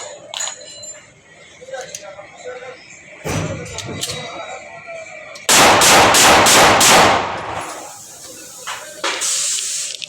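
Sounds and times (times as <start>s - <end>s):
pistol shots: 5.5s - 7.8s
high hiss: 7.6s - 10.0s.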